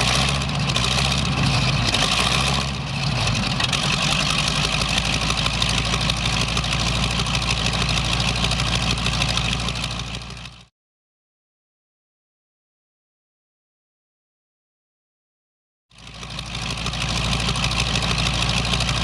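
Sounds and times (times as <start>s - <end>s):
radial aircraft engine idling: 0.0s - 10.7s, 16.0s - 19.0s.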